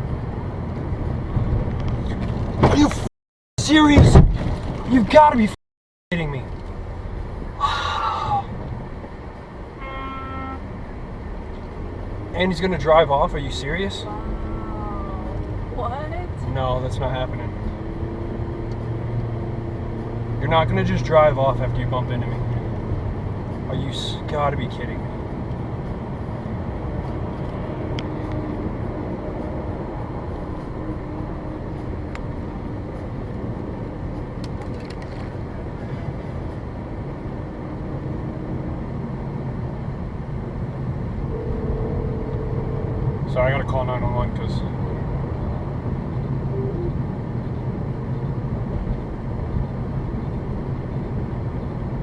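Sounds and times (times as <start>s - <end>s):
car road noise inside cabin: 0.0s - 5.5s, 6.1s - 52.0s
faint tone: 41.2s - 43.7s, 46.5s - 47.0s.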